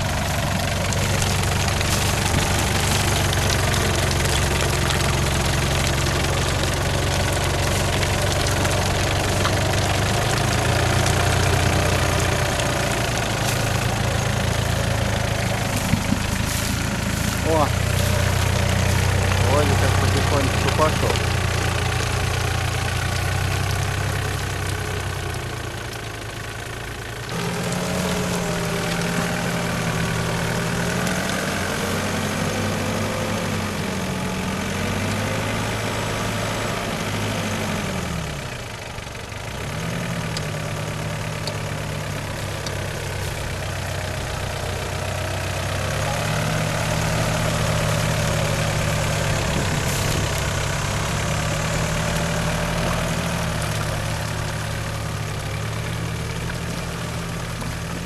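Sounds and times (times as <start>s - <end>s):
engine revving under load: 0.0s - 26.0s, 26.6s - 38.7s, 39.4s - 58.0s.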